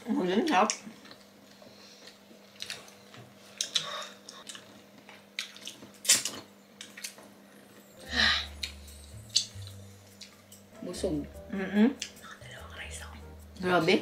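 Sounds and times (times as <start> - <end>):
faint steady hum: 0.0 - 14.0
chewing and lip smacks: 3.6 - 7.2.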